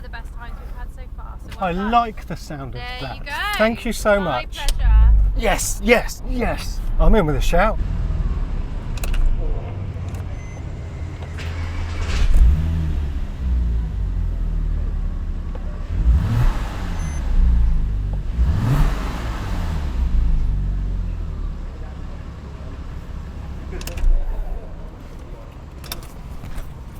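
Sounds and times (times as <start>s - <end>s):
car engine running at low revs: 0.0s - 26.9s.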